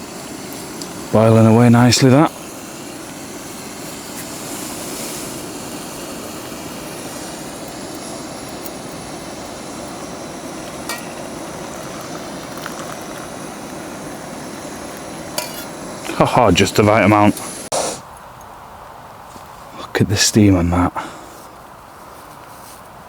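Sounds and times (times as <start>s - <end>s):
stove burner rushing: 0.0s - 17.7s
water boiling: 0.0s - 17.7s.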